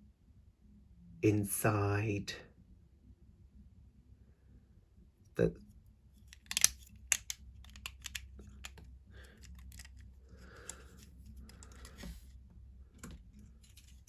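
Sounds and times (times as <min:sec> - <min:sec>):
plastic lego pieces clicking: 0:06.2 - 0:12.2.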